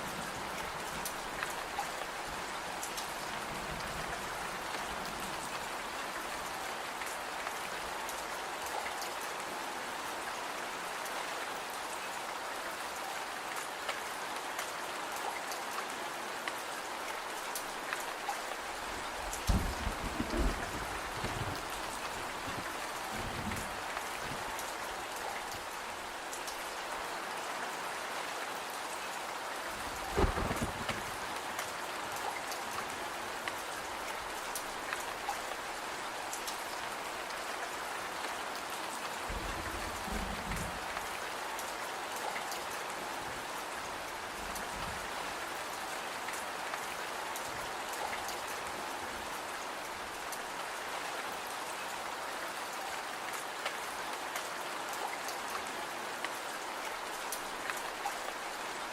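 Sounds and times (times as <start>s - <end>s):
steady rain: 0.0s - 58.9s.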